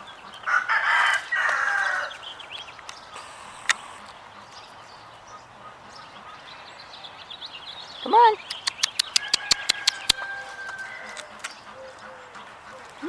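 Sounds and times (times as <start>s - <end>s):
rooster crowing: 0.5s - 2.2s, 9.1s - 11.5s
short sharp click: 8.5s - 10.2s.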